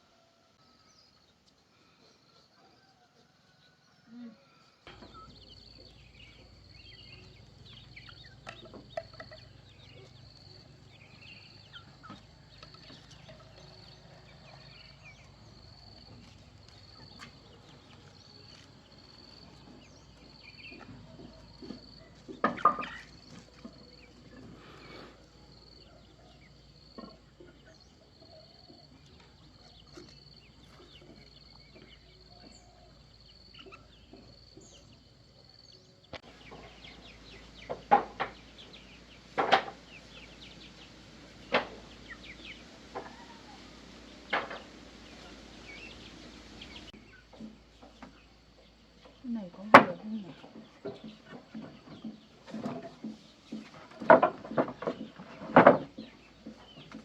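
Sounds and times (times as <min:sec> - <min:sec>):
chickens clucking: 0:01.2 - 0:57.0
loud chicken call: 0:41.4 - 0:46.8.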